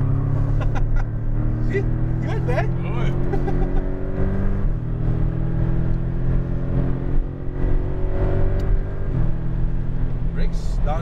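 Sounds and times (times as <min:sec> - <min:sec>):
car engine at full throttle: 0:00.0 - 0:11.0.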